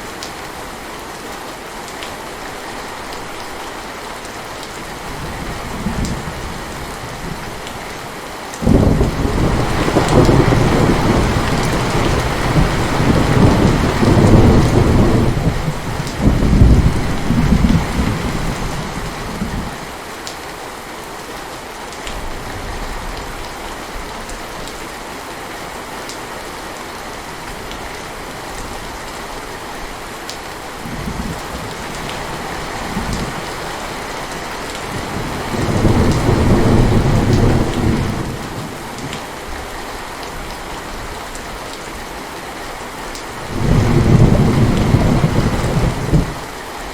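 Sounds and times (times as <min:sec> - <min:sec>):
heavy rain falling: 0:00.0 - 0:46.9
thunder rumbling: 0:08.6 - 0:19.8, 0:34.2 - 0:39.2, 0:43.4 - 0:46.5.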